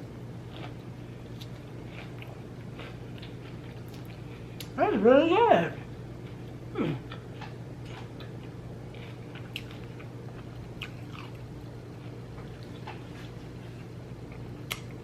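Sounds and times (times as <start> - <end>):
steady low hum: 0.0 - 15.0
person chewing with wet mouth clicks: 14.6 - 15.0.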